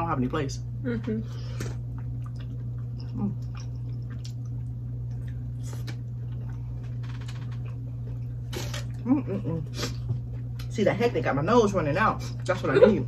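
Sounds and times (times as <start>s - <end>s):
steady low hum: 0.0s - 13.0s
chewing and lip-smacking: 1.6s - 10.8s.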